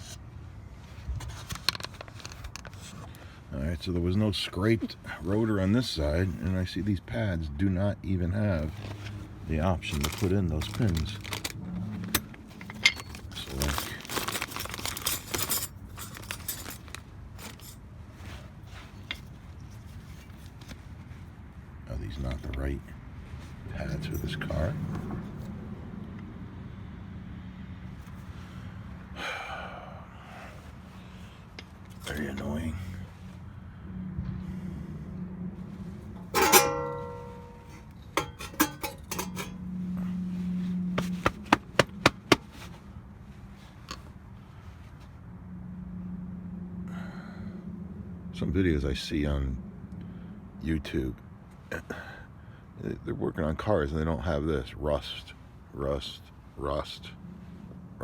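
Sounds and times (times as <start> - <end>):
metallic clinks of brake pads: 10.0 - 17.8, 36.1 - 39.7, 41.0 - 42.7
metal part ringing: 12.6 - 13.2, 36.2 - 39.7
sharp metallic taps: 41.0 - 42.6.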